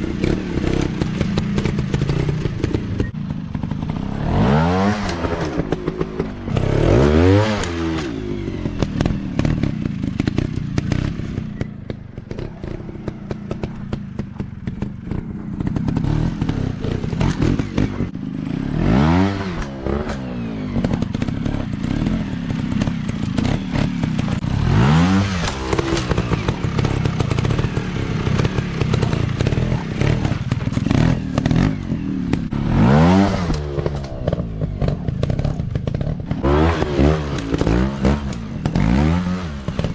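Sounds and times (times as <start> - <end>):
dirt bike engines revving: 0.0 - 39.9
clatter and knocks: 8.8 - 18.2, 25.4 - 32.5.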